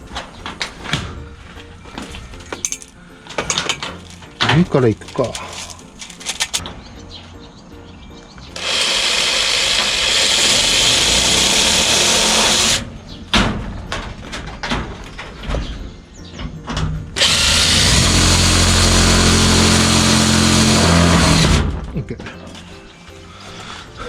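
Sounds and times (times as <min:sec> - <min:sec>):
power drill running: 0:08.6 - 0:12.8, 0:17.2 - 0:21.6.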